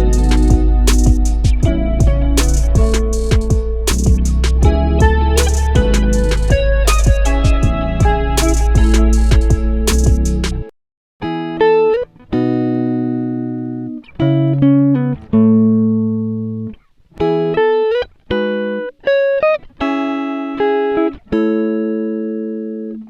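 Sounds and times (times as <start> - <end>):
plucked guitar music: 0.0 - 23.0.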